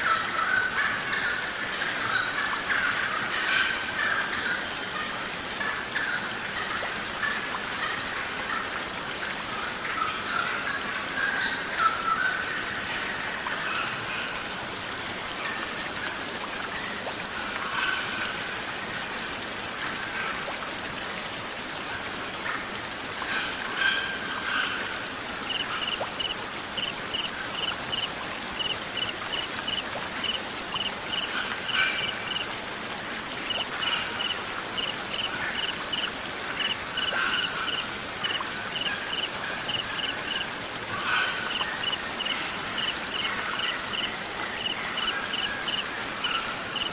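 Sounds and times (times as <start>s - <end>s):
rain-like water hiss: 0.0s - 46.9s
songbird chirps: 25.4s - 32.5s, 33.4s - 40.5s, 41.5s - 46.9s
cricket chirping: 25.5s - 31.3s, 34.2s - 40.4s, 41.5s - 45.8s.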